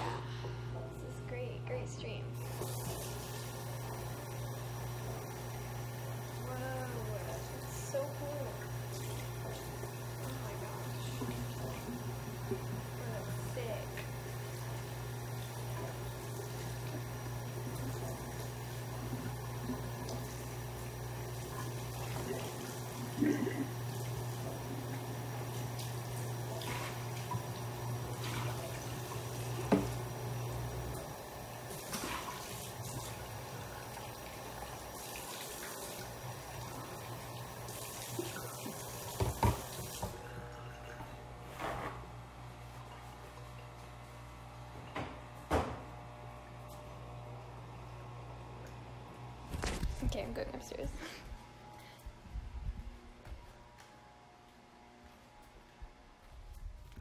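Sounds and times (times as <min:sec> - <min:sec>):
steady low hum: 0:00.0 - 0:35.2, 0:40.2 - 0:57.0
tap water running into sink: 0:02.4 - 0:41.0
tap running into sink: 0:29.6 - 0:30.0, 0:38.2 - 0:40.2.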